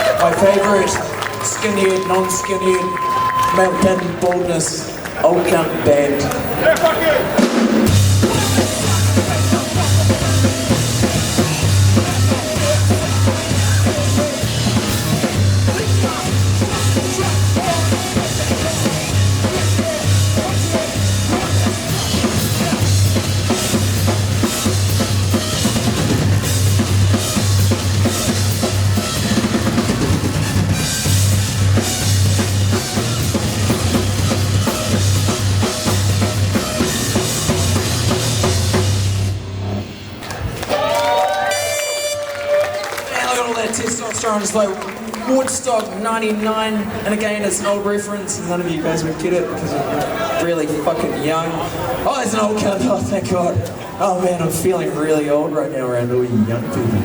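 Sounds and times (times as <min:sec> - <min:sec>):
drum kit: 0:06.8 - 0:40.0
heavy bass guitar: 0:07.4 - 0:40.1.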